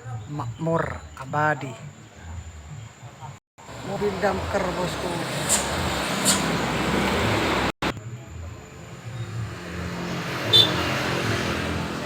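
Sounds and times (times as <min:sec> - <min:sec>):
road noise: 0:00.0 - 0:12.0
truck engine drone: 0:03.3 - 0:12.0.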